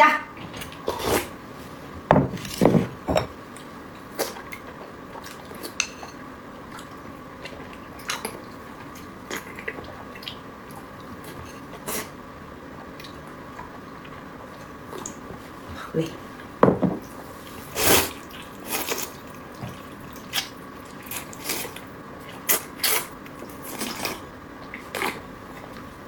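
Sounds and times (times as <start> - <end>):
wet eating sounds: 6.7 - 12.2, 17.4 - 25.8.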